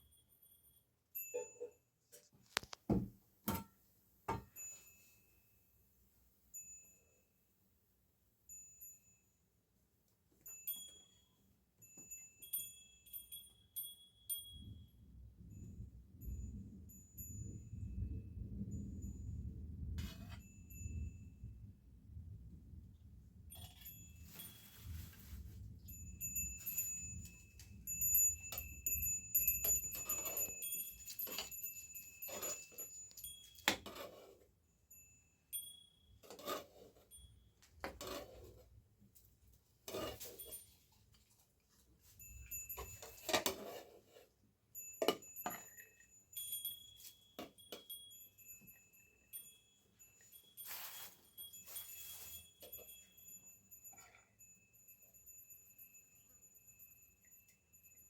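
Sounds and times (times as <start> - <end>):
small metal bells ringing: 0.0 - 1.9, 4.4 - 5.4, 6.5 - 7.4, 8.5 - 9.5, 10.4 - 18.1, 20.0 - 21.6, 23.5 - 38.4, 42.0 - 43.8, 44.7 - 58.0.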